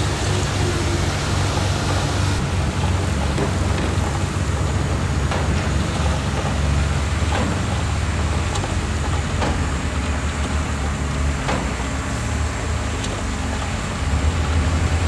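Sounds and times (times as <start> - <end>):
heavy diesel machinery rumbling: 0.0 - 15.0.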